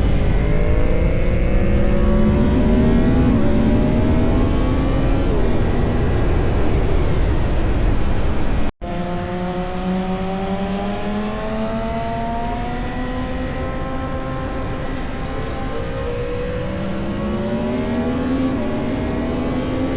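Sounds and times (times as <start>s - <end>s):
wind rumble: 0.0s - 8.7s
motorcycle engine accelerating: 0.0s - 19.9s.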